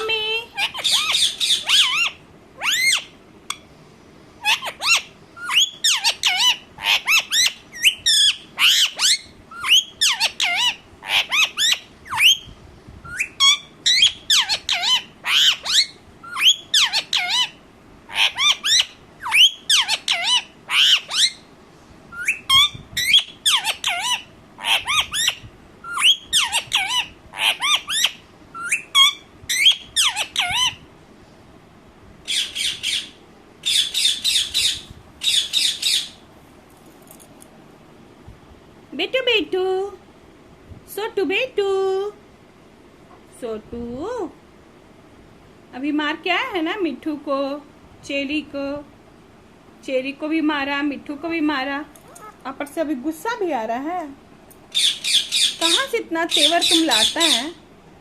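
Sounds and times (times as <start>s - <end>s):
parrot squawking: 0.0s - 3.6s, 4.4s - 12.4s, 13.1s - 21.4s, 22.2s - 30.8s, 32.3s - 36.2s, 52.0s - 52.4s, 54.7s - 57.6s.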